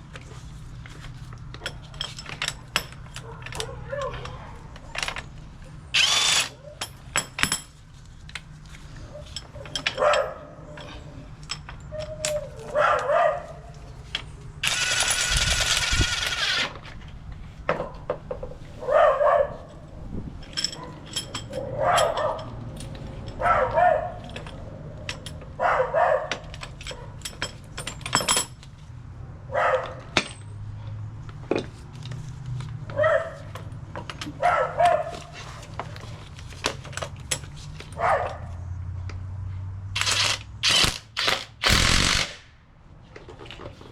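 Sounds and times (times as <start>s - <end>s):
metal tools clinking: 0.8s - 18.6s, 19.5s - 25.6s, 26.2s - 28.9s, 33.4s - 38.3s
dog barking: 3.2s - 4.2s, 9.1s - 10.8s, 12.6s - 13.7s, 18.8s - 19.8s, 21.6s - 22.5s, 23.4s - 24.2s, 25.6s - 27.2s, 29.5s - 30.1s, 32.9s - 33.5s, 34.4s - 35.3s, 38.0s - 38.6s
power tool running: 5.9s - 6.6s, 14.6s - 16.8s, 40.0s - 42.4s.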